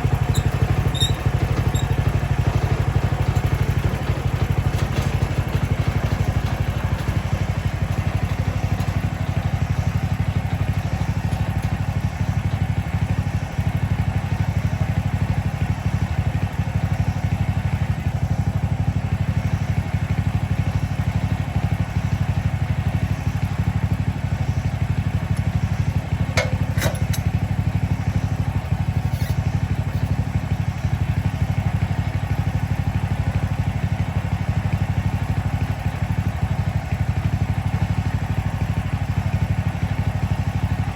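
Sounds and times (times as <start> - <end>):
small engine running: 0.0 - 40.9.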